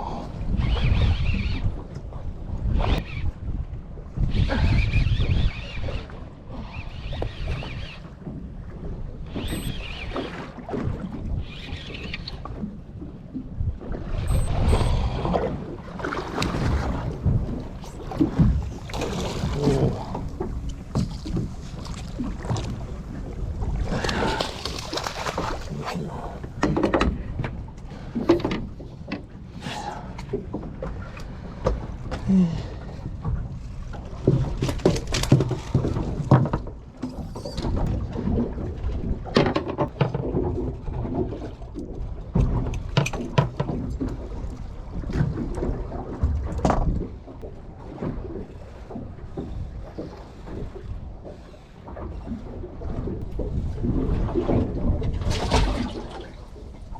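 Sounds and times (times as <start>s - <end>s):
low rumble of wind and water: 0.0s - 56.9s
water splashes: 13.4s - 28.9s, 33.8s - 56.9s.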